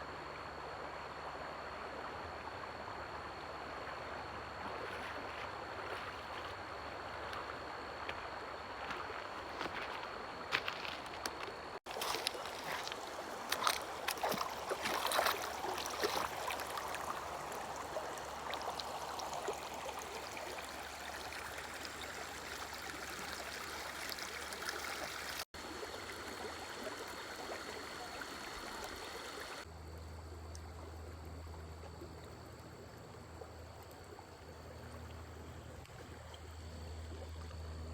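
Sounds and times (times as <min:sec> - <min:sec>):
low steady hum: 0:00.0 - 0:24.6
stream water rushing: 0:11.8 - 0:29.7.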